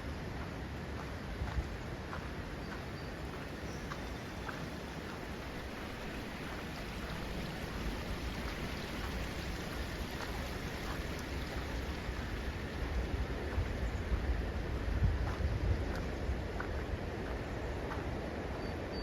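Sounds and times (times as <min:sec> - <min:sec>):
wind rumble on microphone: 0:00.0 - 0:19.0
water rushing: 0:02.0 - 0:15.0.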